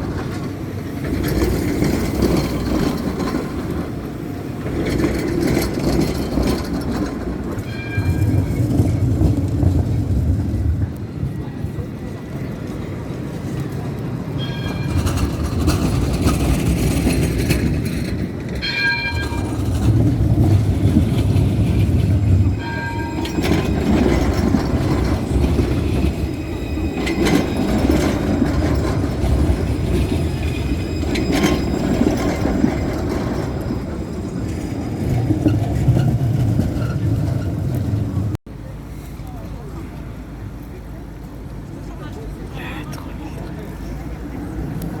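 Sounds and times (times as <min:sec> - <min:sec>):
tram rumbling: 0:00.0 - 0:45.0.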